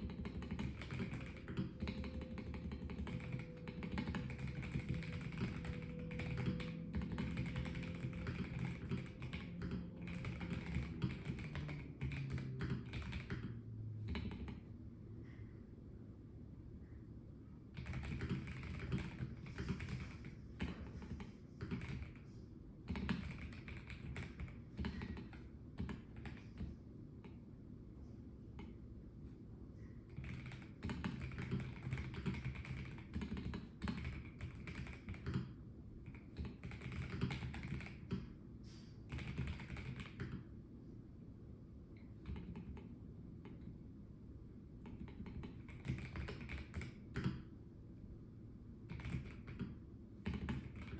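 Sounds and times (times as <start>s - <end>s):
mechanical keyboard typing: 0.0s - 14.6s, 17.8s - 22.2s, 22.9s - 27.4s, 30.1s - 38.3s, 39.1s - 40.4s, 42.2s - 43.7s, 44.8s - 47.5s, 48.9s - 50.9s.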